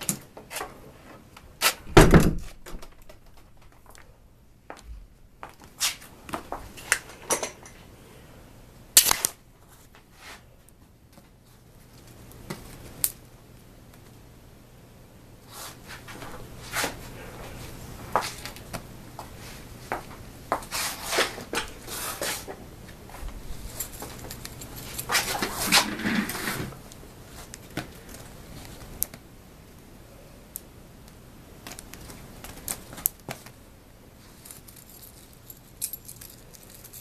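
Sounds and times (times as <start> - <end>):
heavy thump: 1.9 - 2.8.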